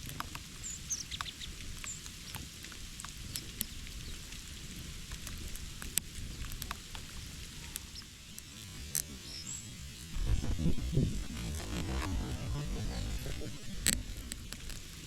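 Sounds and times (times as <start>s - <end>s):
low rumble: 9.6s - 15.0s.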